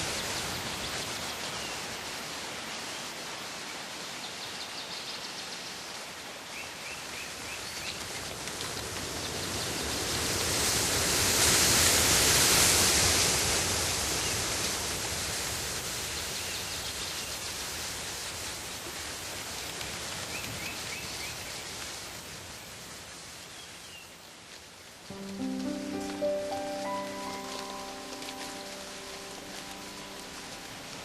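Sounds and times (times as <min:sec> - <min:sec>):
steady rushing noise: 0:25.1 - 0:31.0.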